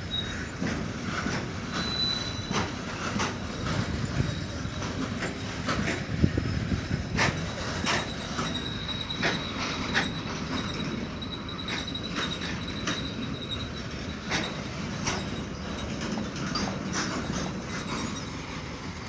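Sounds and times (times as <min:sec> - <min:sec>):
thin high squeal: 0:01.7 - 0:02.7.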